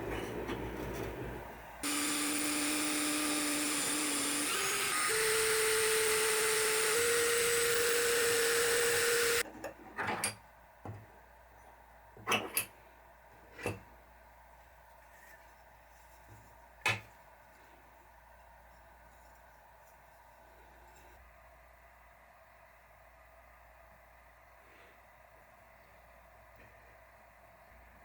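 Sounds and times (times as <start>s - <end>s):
small electric power tool running: 1.8s - 9.4s.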